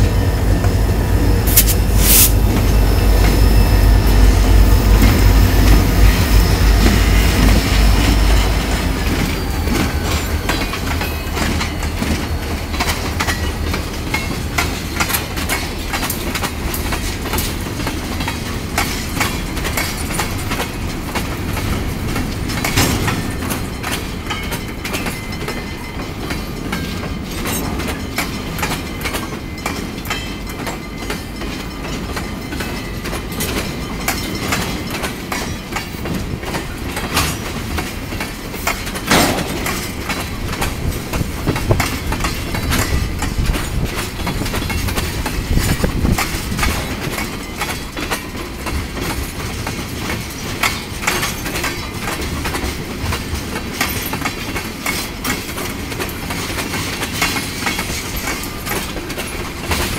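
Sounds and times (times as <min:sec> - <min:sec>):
diesel locomotive rumble: 0:00.0 - 0:24.5, 0:36.0 - 0:49.1
freight wheels clattering over joints: 0:06.1 - 0:59.9.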